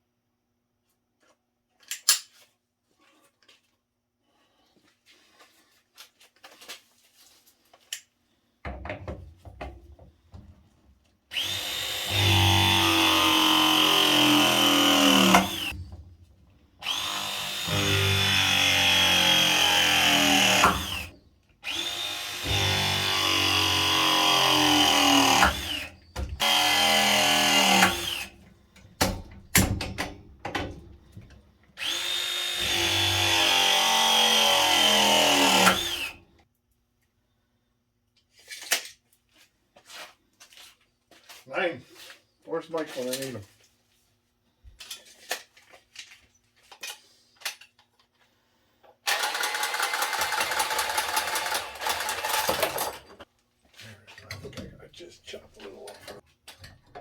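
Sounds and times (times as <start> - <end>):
tool handling clicks: 1.8 - 2.4
pipe press tool whining: 11.3 - 16.0, 16.8 - 30.6, 31.2 - 36.2.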